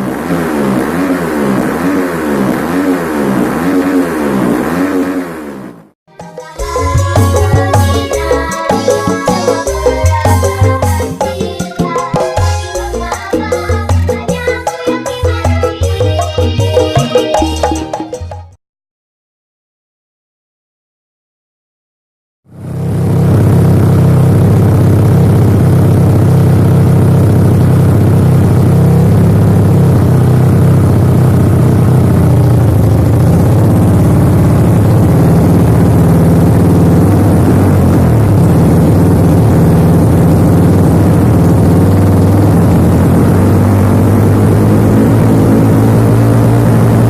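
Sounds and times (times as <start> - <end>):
motorcycle engine idling: 22.8 - 47.0.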